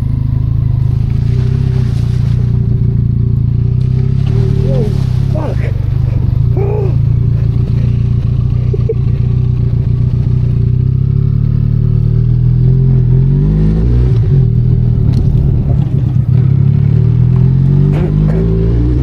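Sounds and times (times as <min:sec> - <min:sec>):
motorcycle engine running: 0:00.0 - 0:19.0
light clattering from motorcycle: 0:14.1 - 0:18.5.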